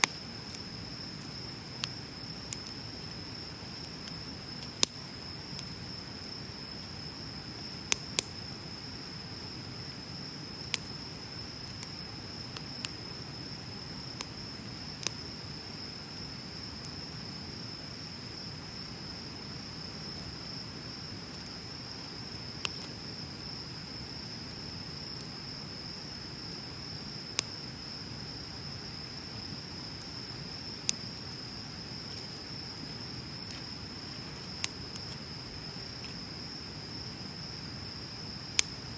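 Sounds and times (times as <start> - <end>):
bonfire hissing and crackling: 0.0 - 38.9
insect trill: 0.0 - 38.9.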